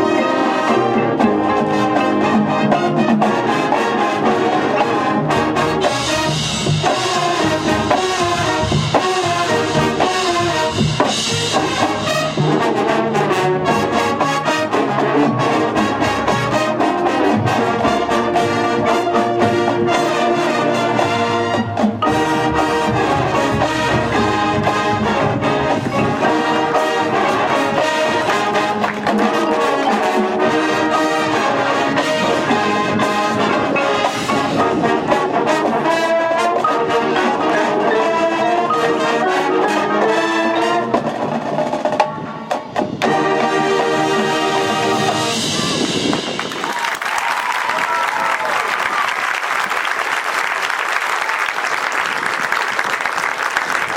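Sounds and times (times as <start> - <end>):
brass band playing: 0.0 - 53.9
percussion hits: 1.2 - 13.0, 21.0 - 36.0, 44.8 - 47.2.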